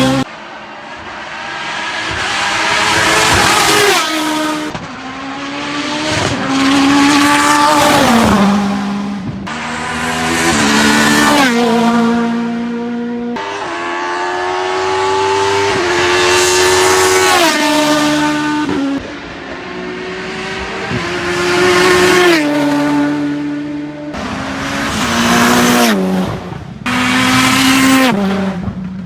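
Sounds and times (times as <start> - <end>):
racing car engine accelerating: 0.0 - 28.8.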